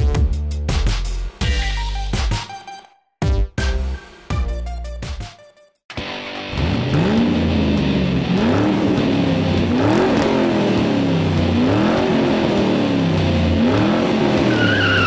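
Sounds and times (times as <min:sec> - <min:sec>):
car engine revving: 0:06.4 - 0:15.0.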